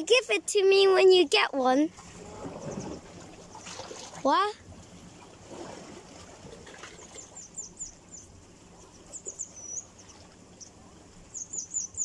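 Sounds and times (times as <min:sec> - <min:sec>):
small bird chirping: 0:07.1 - 0:12.0.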